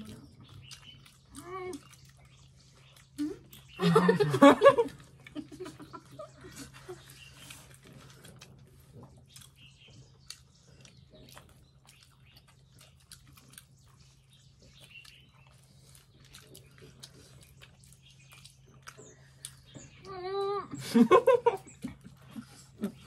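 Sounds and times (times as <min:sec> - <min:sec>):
people chewing: 0:00.0 - 0:23.0.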